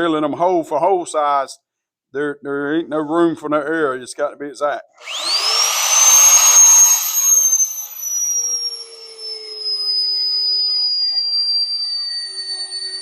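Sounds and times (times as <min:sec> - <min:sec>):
electric drill motor whine: 0:05.0 - 0:13.0.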